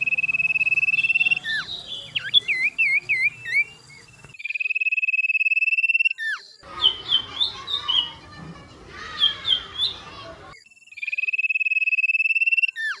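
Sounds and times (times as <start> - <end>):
high bird trill: 0.0 - 4.4, 6.6 - 10.6
sharp bird chirps: 0.0 - 8.4
whistled bird song: 0.0 - 13.0.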